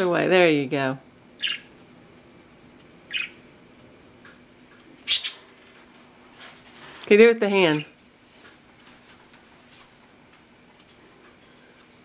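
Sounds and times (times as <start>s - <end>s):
parakeet calls: 1.4s - 1.8s, 3.1s - 3.4s, 5.0s - 5.5s.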